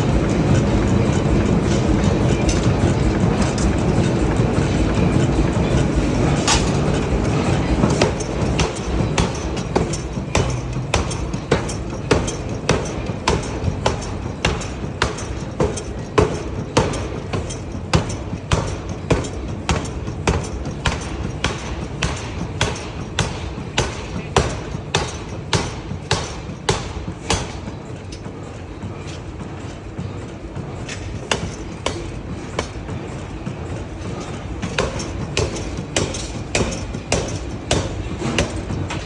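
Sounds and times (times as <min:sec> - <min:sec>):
low factory rumble: 0:00.0 - 0:39.0
forging hammer striking hot steel: 0:00.1 - 0:28.2, 0:30.8 - 0:39.0.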